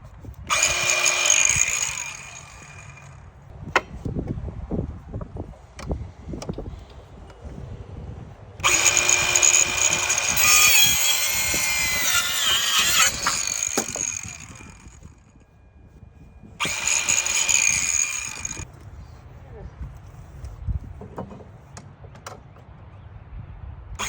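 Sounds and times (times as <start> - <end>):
cordless circular saw whining: 0.5 - 3.3, 8.6 - 15.5, 16.2 - 18.7.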